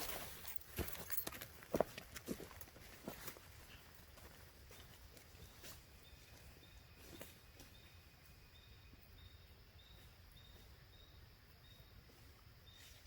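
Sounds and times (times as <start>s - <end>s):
faint high chirp: 4.8s - 13.0s.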